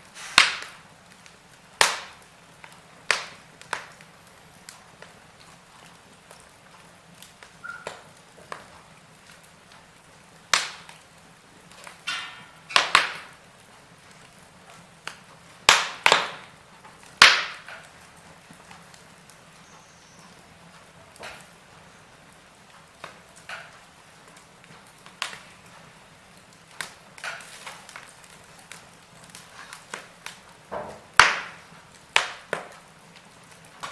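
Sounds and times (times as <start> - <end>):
soft hiss: 0.0 - 15.7
fire crackling and popping: 0.0 - 33.9.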